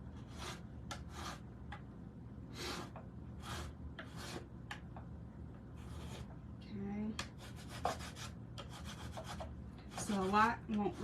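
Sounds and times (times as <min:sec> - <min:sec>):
scraper scraping painted wood: 0:00.2 - 0:01.4, 0:02.5 - 0:04.5, 0:05.8 - 0:06.3, 0:07.4 - 0:11.0.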